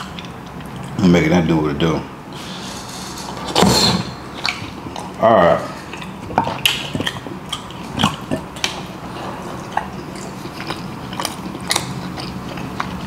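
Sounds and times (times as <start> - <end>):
person chewing: 4.3 - 13.0
wet mouth clicks and smacks: 5.8 - 8.9, 9.8 - 13.0.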